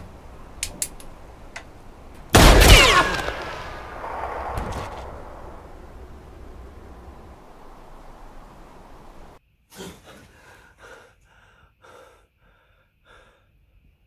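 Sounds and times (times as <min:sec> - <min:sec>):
low rumbling noise: 0:00.0 - 0:09.4
man breathing hard: 0:09.8 - 0:13.8.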